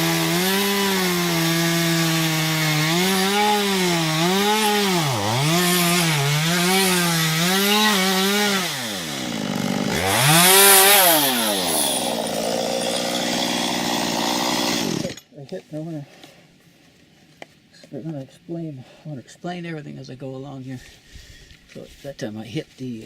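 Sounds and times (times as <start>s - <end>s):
chainsaw cutting wood: 0.0s - 15.3s.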